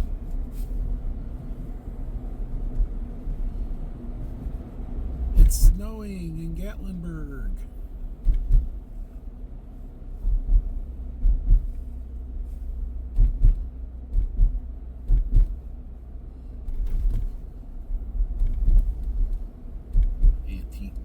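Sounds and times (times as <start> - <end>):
car driving rumble from inside: 0.0 - 21.0
short low thumps: 8.1 - 8.9, 10.2 - 15.8, 18.0 - 20.5.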